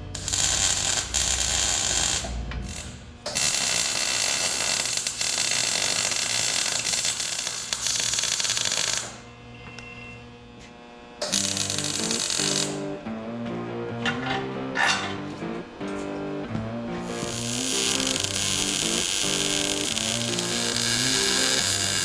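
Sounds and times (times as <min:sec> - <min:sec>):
power tool hissing: 0:11.2 - 0:12.9, 0:17.1 - 0:22.0.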